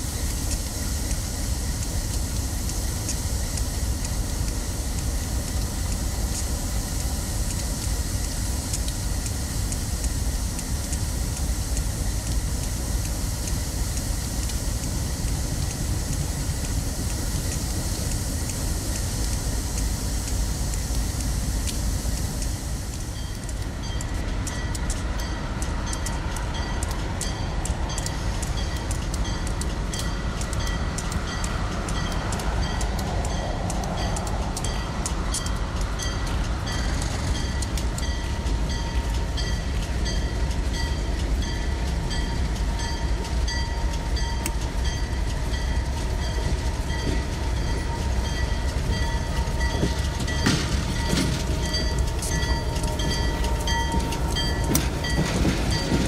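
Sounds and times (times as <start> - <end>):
train cars rumbling: 0.0 - 56.0
wheels clicking over rails: 0.0 - 56.0
steady ringing tones: 36.0 - 56.0.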